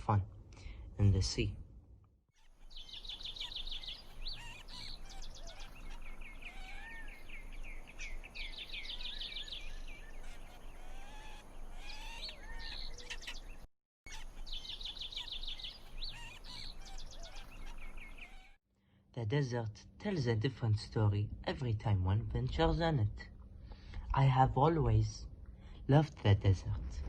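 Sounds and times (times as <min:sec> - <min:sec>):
birds singing and chirping: 0:02.4 - 0:18.6.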